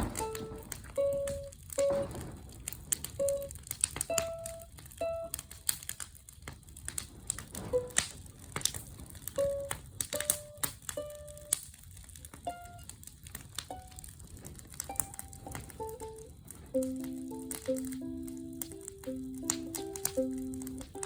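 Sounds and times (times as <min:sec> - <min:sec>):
bonfire crackling: 0:00.0 - 0:21.0
single notes slow tune: 0:16.8 - 0:21.0.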